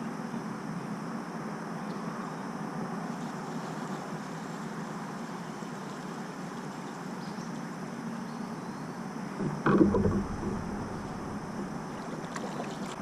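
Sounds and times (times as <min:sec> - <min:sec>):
outdoor hiss: 0:02.0 - 0:09.4
hollow knock on kayak: 0:09.4 - 0:12.9.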